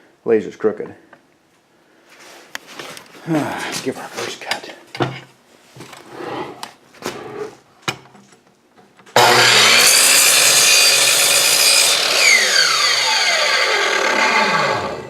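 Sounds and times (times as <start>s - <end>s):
miter saw cutting wood: 9.2s - 15.0s
saw motor whine spinning down: 9.2s - 15.0s.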